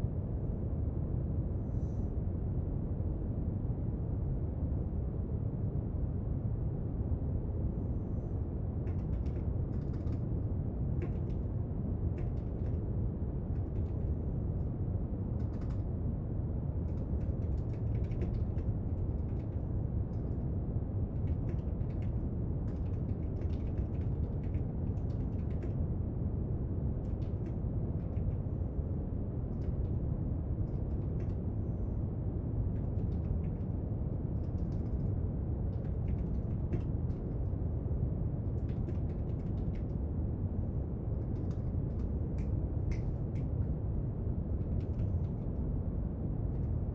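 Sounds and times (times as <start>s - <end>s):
light clicks and taps at desk: 8.9s - 10.3s, 11.0s - 11.5s, 12.2s - 12.8s, 15.4s - 15.9s, 16.9s - 20.4s, 21.2s - 25.8s, 30.7s - 31.4s, 32.7s - 33.7s, 34.4s - 37.5s, 38.5s - 40.0s, 41.2s - 43.8s, 44.6s - 45.6s.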